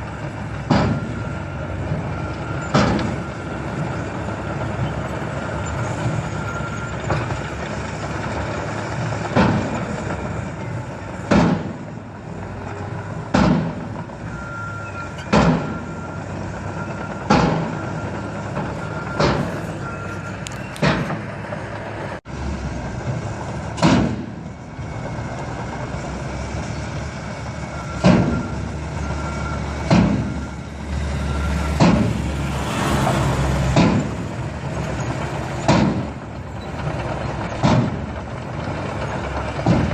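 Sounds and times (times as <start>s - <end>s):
truck engine running: 0.0s - 39.9s
sharp loud bangs: 11.3s - 11.8s, 13.3s - 13.9s, 15.3s - 15.8s, 23.8s - 24.4s.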